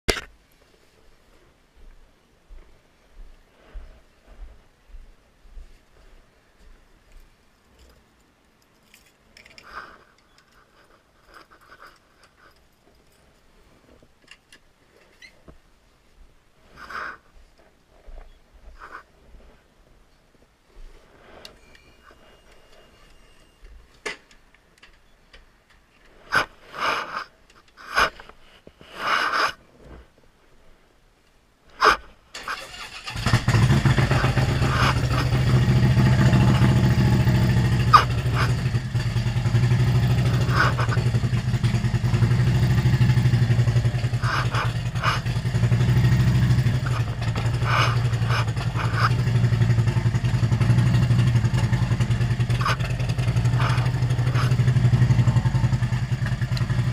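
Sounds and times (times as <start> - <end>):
motorcycle engine running: 32.8 - 56.9.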